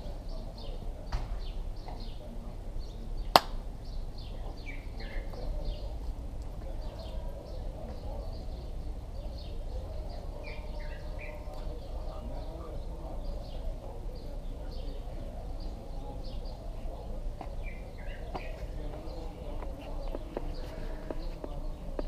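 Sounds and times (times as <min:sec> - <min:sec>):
low background noise: 0:00.0 - 0:22.0
small birds chirping: 0:00.0 - 0:22.0.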